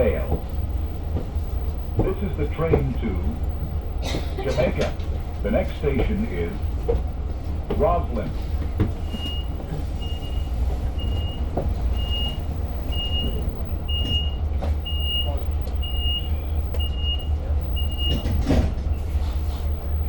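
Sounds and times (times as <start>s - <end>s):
moving train rumble: 0.0s - 20.0s
electronic warning beeps: 9.0s - 20.0s.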